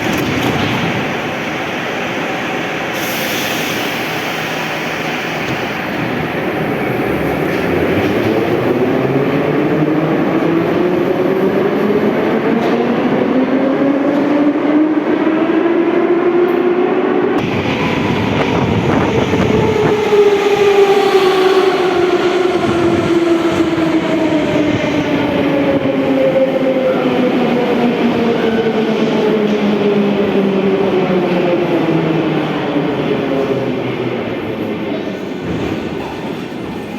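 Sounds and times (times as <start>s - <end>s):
wheel and track rumble: 5.4s - 13.0s.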